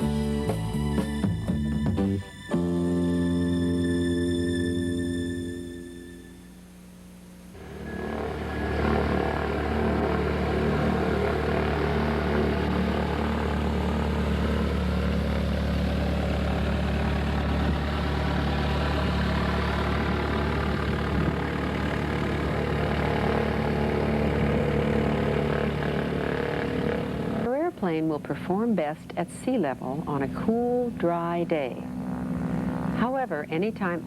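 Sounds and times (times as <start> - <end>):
propeller plane piston engine: 7.5 - 34.0.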